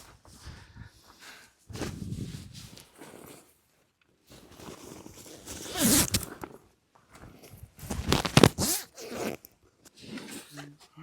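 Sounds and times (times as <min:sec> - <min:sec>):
zipper being pulled: 0:04.4 - 0:06.6, 0:07.8 - 0:10.6.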